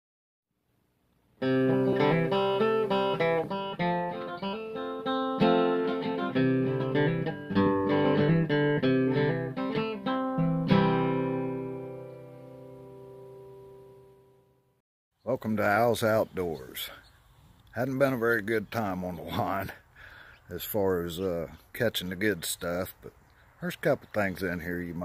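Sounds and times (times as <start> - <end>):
acoustic guitar melody: 1.4 - 14.5.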